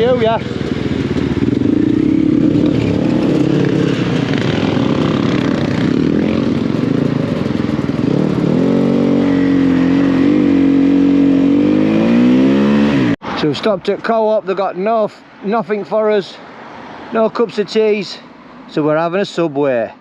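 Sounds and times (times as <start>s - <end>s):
motorcycle engine running: 0.0s - 13.2s.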